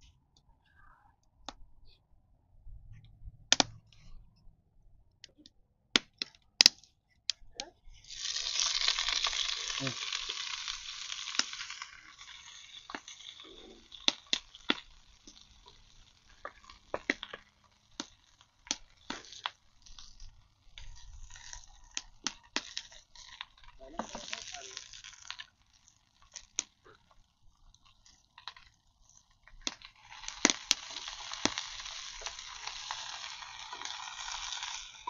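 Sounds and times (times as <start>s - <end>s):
food sizzling in hot oil: 8.0s - 35.0s.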